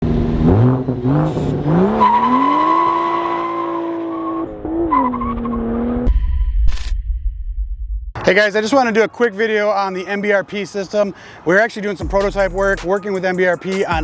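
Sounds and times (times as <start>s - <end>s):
car engine revving: 0.0s - 6.1s.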